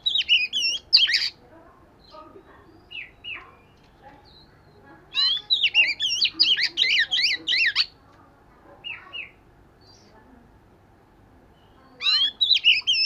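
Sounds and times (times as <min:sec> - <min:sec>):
bird singing whistled notes: 0:00.0 - 0:01.4, 0:02.8 - 0:04.5, 0:05.2 - 0:07.9, 0:11.6 - 0:13.0.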